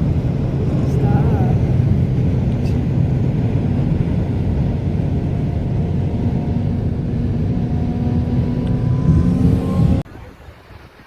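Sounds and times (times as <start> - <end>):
moving vehicle rumbling: 0.0 - 10.1.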